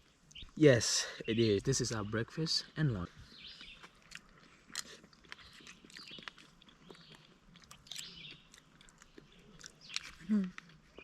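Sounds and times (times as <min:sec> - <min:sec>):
people chewing: 0:02.6 - 0:11.0.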